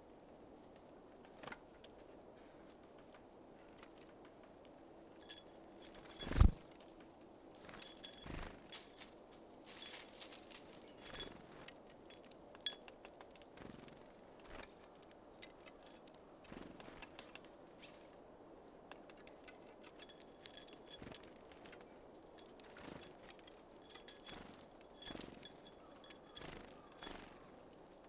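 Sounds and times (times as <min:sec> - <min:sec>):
beaks tapping on feeder: 0:19.1 - 0:27.4.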